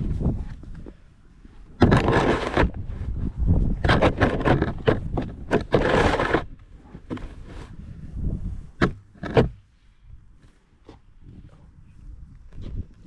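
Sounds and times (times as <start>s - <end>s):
snow shovel scraping snow: 1.8s - 3.2s, 5.5s - 6.6s.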